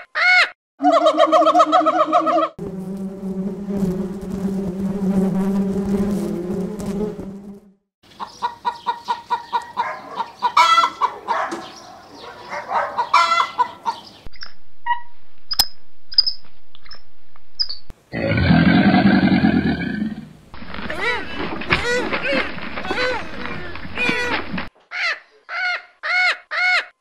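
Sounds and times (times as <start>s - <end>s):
long low chicken call: 0.2s - 2.5s
chickens clucking: 8.1s - 14.2s.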